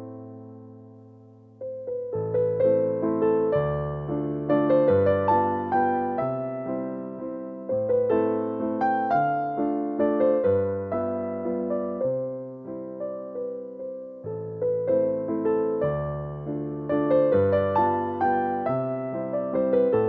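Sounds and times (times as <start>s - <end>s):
gentle piano waltz: 0.0s - 20.0s.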